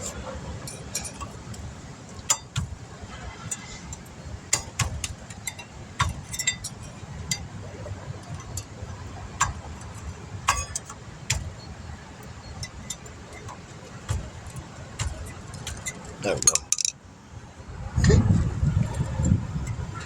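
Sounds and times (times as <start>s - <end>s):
metallic clicks of hand tools: 0.7s - 2.8s, 3.5s - 7.5s, 9.4s - 11.6s, 12.2s - 17.0s.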